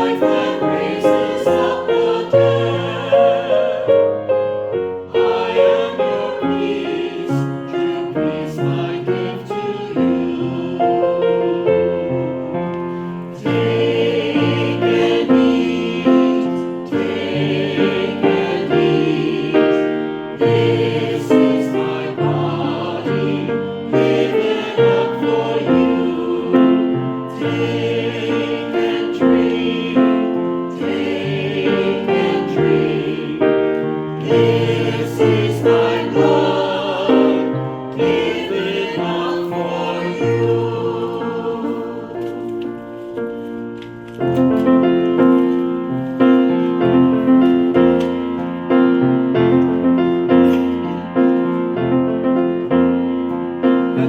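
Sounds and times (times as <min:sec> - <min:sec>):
choir singing a hymn: 0:00.0 - 0:43.6, 0:44.4 - 0:54.0
piano accompaniment: 0:00.0 - 0:54.0.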